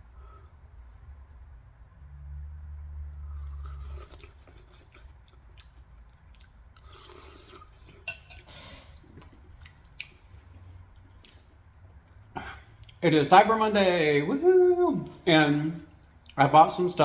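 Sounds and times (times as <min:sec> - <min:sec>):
chewing: 0:03.1 - 0:13.0
spoon clinking against bowl: 0:08.0 - 0:08.6.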